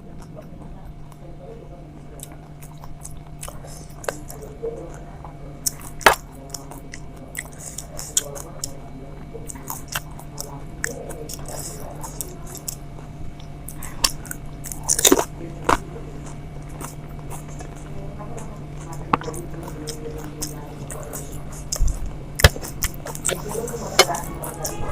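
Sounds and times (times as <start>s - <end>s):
steady low hum: 0.0s - 24.9s
wet chewing: 0.0s - 24.9s
crisp food crunching: 9.4s - 24.7s.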